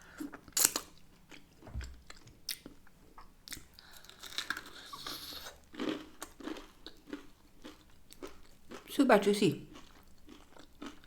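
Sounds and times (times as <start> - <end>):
person chewing with smacking lips: 9.7 - 11.0.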